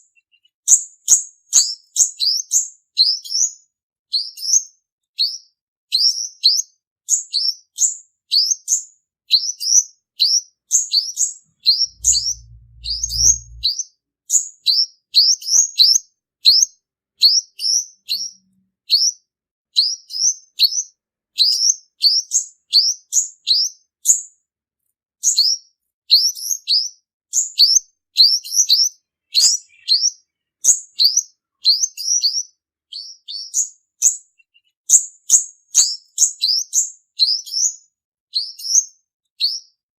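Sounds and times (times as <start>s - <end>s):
sunbird chirping: 11.6s - 13.7s, 29.2s - 31.1s.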